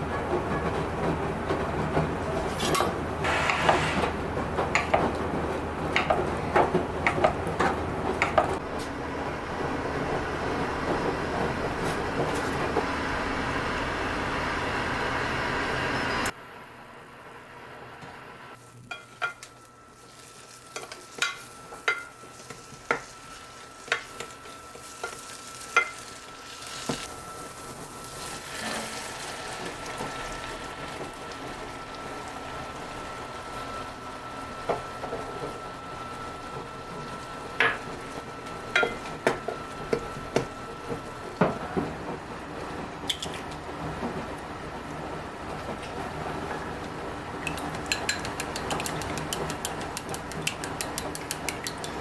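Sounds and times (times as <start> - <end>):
food sizzling in a pan: 19.9 - 29.9
utensil knocking on pan: 47.8 - 52.0.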